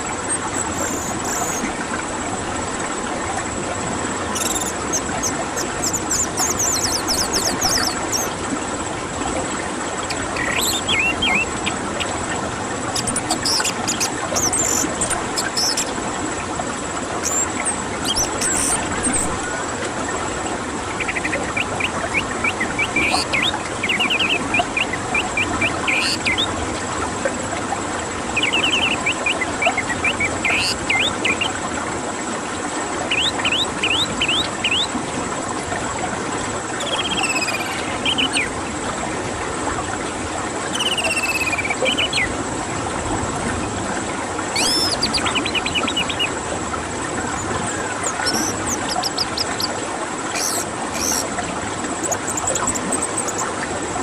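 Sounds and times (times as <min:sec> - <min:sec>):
thrush singing trilled whistles: 0:00.4 - 0:01.7, 0:04.3 - 0:08.4, 0:10.1 - 0:12.1, 0:13.0 - 0:16.0, 0:17.2 - 0:19.6, 0:21.0 - 0:26.5, 0:28.4 - 0:31.6, 0:33.1 - 0:34.9, 0:36.8 - 0:38.5, 0:40.7 - 0:42.3, 0:44.6 - 0:46.3, 0:47.4 - 0:49.7, 0:50.3 - 0:51.3, 0:52.0 - 0:53.5.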